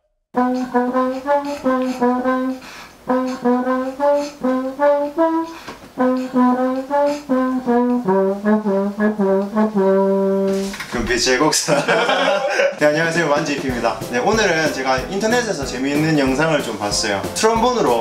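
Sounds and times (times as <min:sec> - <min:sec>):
trombone playing bouncy tune: 0:00.4 - 0:10.8.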